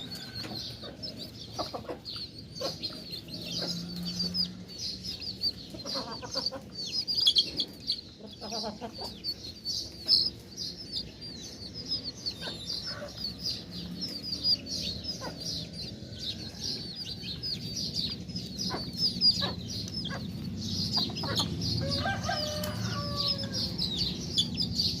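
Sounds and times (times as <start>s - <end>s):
chickens clucking: 0.0s - 25.0s
chicks peeping: 0.0s - 25.0s.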